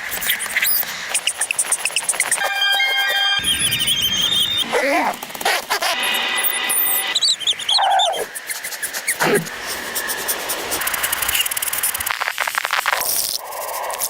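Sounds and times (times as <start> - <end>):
animal whining cries: 2.2 - 8.3, 9.1 - 9.6
steady hiss: 8.2 - 14.0.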